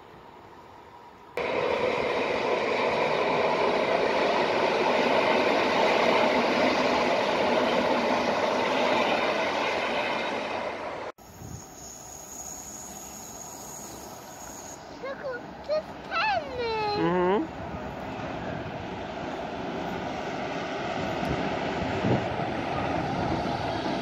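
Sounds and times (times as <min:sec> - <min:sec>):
train wheels rumbling on rails: 0:01.4 - 0:24.0
faint high whine: 0:11.2 - 0:15.1.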